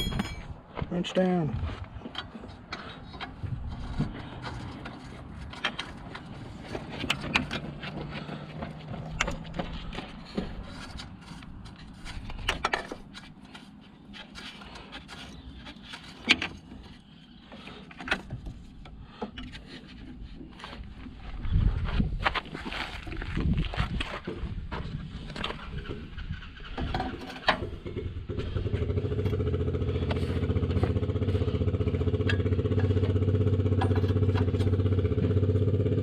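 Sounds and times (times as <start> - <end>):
hand tools clicking and scraping: 1.6 - 21.3, 28.4 - 34.8.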